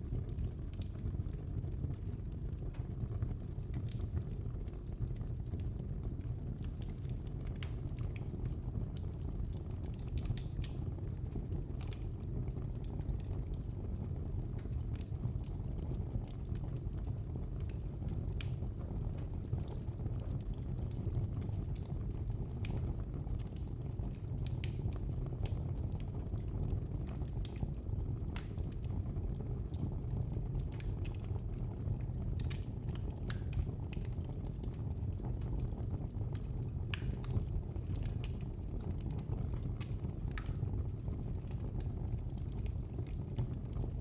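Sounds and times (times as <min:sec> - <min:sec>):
fire crackling and popping: 0:00.0 - 0:44.0
fire flames rushing: 0:11.1 - 0:44.0.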